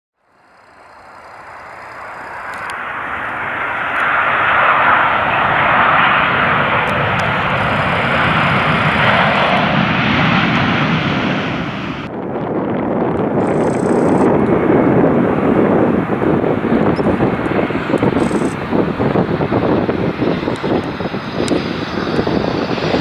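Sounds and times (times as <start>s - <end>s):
jet airliner engine rushing: 0.3s - 23.0s
wind rumble on microphone: 4.8s - 23.0s.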